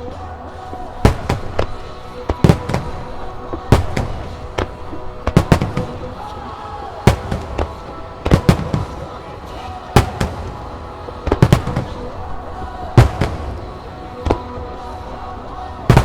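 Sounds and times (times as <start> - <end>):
firework shells bursting: 0.0 - 16.0
loud rock song: 0.0 - 16.0.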